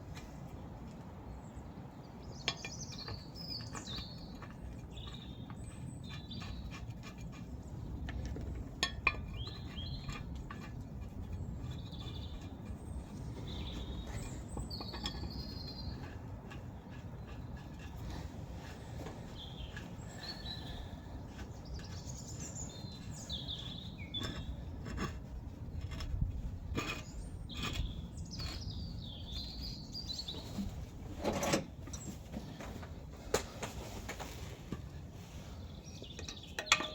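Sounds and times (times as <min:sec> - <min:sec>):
low outdoor rumble: 0:00.0 - 0:36.8
birds chirping: 0:01.3 - 0:06.8, 0:09.0 - 0:24.8, 0:26.8 - 0:31.0, 0:34.3 - 0:36.9.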